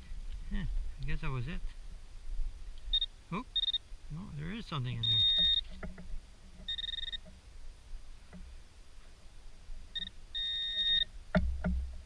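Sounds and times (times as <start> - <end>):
pinpointer high-pitched beeps: 2.9 - 3.9, 4.9 - 5.8, 6.6 - 7.3, 9.9 - 11.1.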